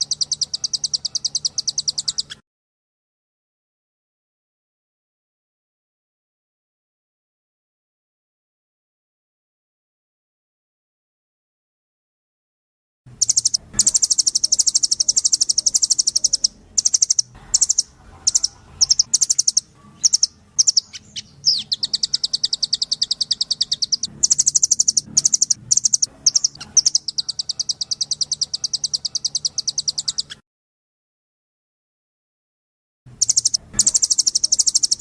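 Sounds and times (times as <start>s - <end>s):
bird trilling high notes: 13.2s - 30.4s, 33.2s - 35.0s.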